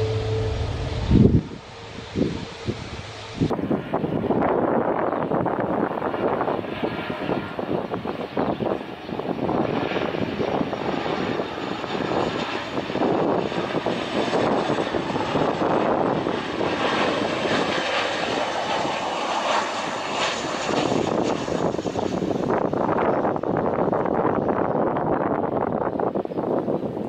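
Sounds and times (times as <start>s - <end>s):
airliner engines roaring: 0.0s - 27.0s.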